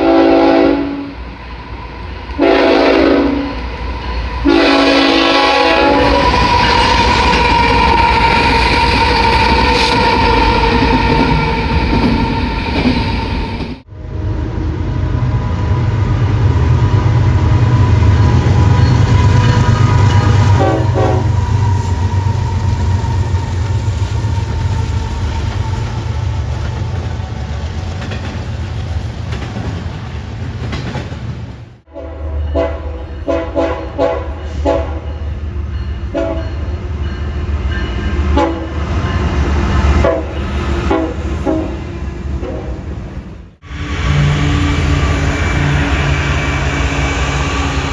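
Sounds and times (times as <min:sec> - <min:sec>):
train horn: 0:00.0 - 0:01.2, 0:02.3 - 0:11.4, 0:13.8 - 0:23.7, 0:31.9 - 0:35.3, 0:36.1 - 0:42.9, 0:43.6 - 0:47.9
passing train rumble: 0:00.0 - 0:47.9.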